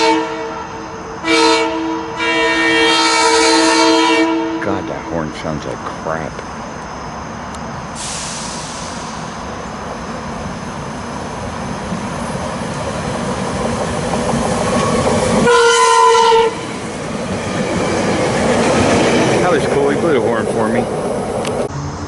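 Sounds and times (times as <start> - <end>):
train horn blast: 0.0 - 5.1, 15.4 - 16.7
train rumble and wheel noise: 0.0 - 22.0
train hiss: 7.8 - 15.0.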